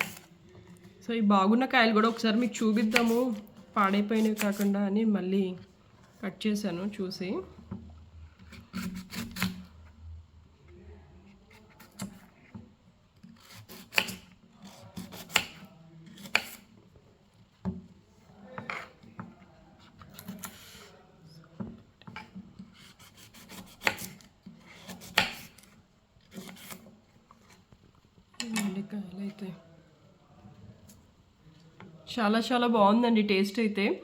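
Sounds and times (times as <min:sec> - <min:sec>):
knife cutting fruit: 0:00.0 - 0:00.4, 0:02.0 - 0:04.8, 0:08.4 - 0:09.8, 0:11.2 - 0:12.6, 0:13.2 - 0:16.8, 0:18.5 - 0:21.1, 0:22.0 - 0:27.6.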